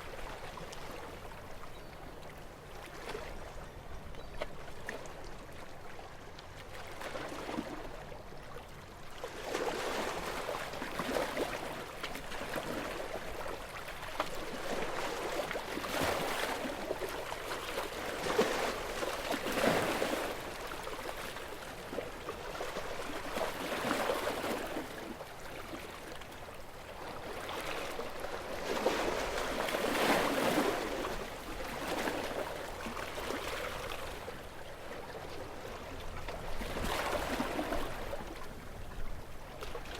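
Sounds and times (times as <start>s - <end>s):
sea waves breaking on shore: 9.2s - 39.9s.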